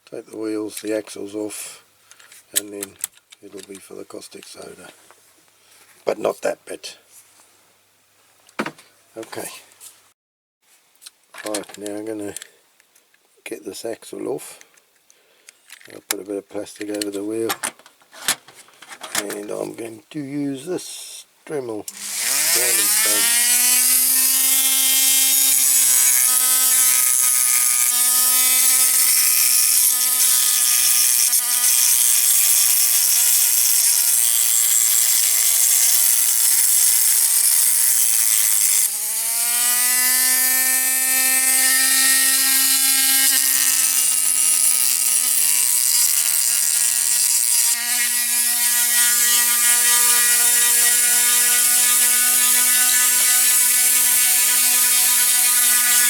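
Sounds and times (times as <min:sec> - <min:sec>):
rotary tool grinding metal: 0:21.9 - 0:56.0.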